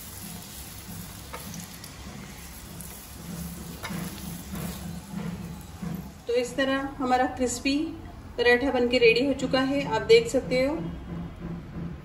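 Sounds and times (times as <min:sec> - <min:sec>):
ghee sizzling on a pan: 0:00.0 - 0:07.3.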